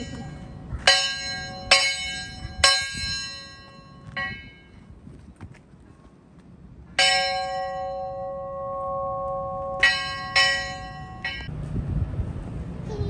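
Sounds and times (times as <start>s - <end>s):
bell ringing: 0.0s - 4.7s, 7.0s - 11.5s.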